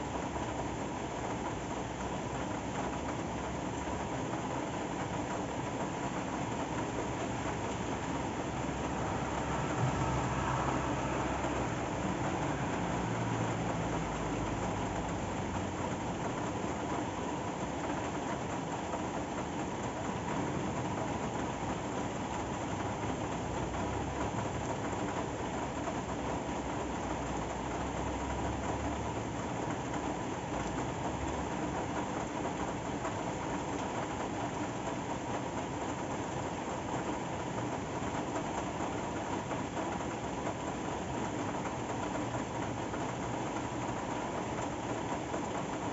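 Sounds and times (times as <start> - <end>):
steady rain falling: 0.0 - 45.9
low rumble: 7.0 - 15.4.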